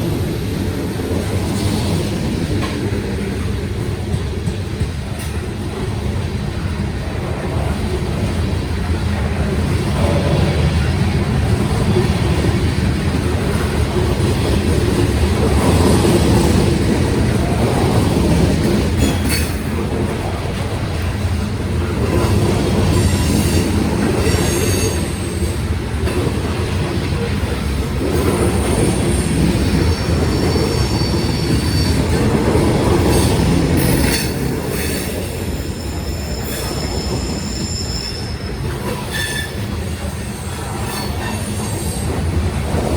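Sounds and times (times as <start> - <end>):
train wheels rumbling on rail: 0.0 - 42.9
wheel squeal: 24.2 - 25.5, 28.5 - 32.3, 33.1 - 42.1.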